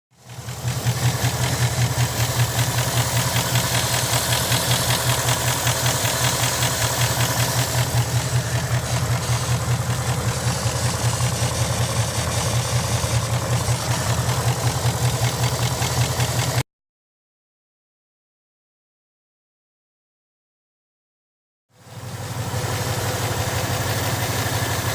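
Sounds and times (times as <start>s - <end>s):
car engine idling: 0.2s - 16.6s, 21.9s - 24.9s
fast mechanical clacking: 0.3s - 16.6s.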